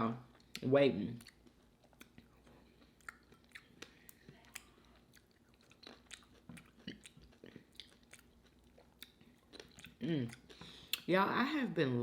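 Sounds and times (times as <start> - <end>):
person chewing food: 0.2 - 11.1.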